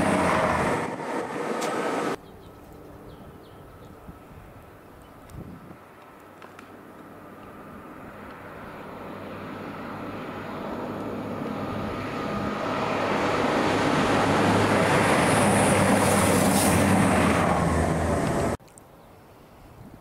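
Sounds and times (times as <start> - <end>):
diesel train passing: 0.0 - 2.4, 7.0 - 18.6.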